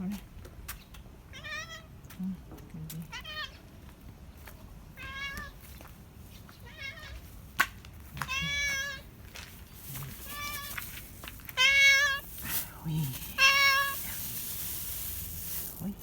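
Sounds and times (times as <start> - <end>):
cat meowing: 1.3 - 1.9, 3.1 - 3.6, 5.0 - 5.6, 6.6 - 7.2, 8.2 - 9.1, 10.2 - 10.8, 11.5 - 14.2.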